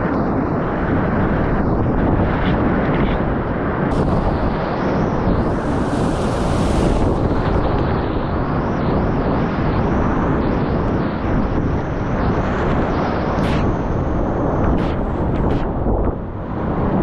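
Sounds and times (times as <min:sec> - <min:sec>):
wind buffeting microphone: 0:00.0 - 0:17.0
water splashing hiss: 0:03.9 - 0:08.0.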